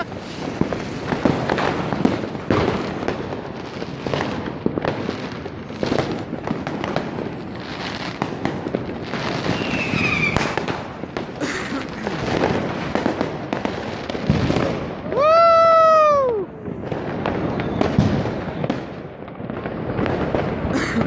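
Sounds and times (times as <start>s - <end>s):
fireworks bangs and crackles: 0.0s - 21.0s
high firework whistle: 9.0s - 10.9s, 15.1s - 18.9s.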